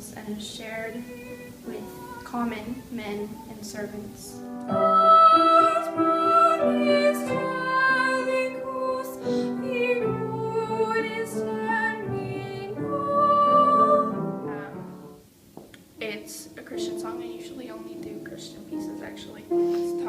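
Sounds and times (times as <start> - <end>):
young woman singing: 0.0 - 14.8
piano accompaniment: 0.0 - 20.0.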